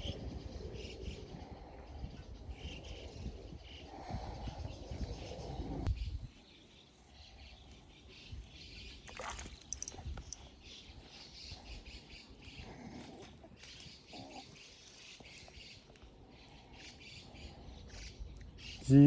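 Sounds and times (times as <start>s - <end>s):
birds chirping and calling: 0.0s - 19.0s.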